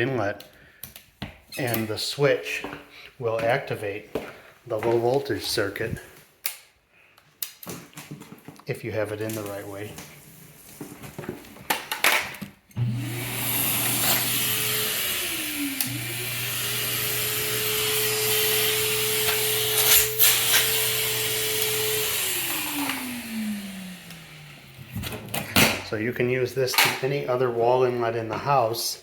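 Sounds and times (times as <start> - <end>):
vacuum motor whining: 12.8 - 25.6.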